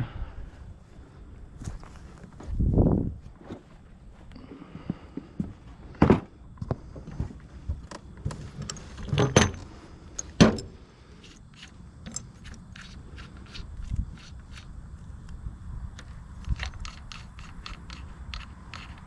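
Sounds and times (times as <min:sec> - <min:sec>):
metal tools knocking: 0:08.6 - 0:10.7.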